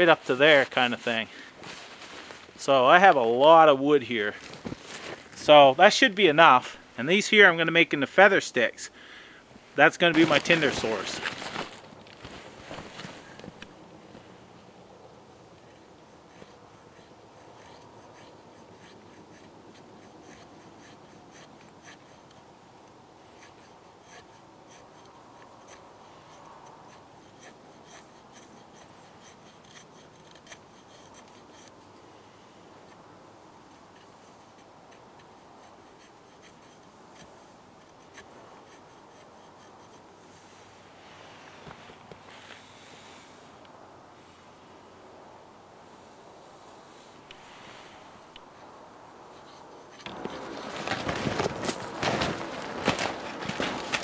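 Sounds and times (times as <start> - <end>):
knife scraping wood: 15.6 - 22.5, 23.3 - 32.0, 33.7 - 40.6, 47.2 - 54.0.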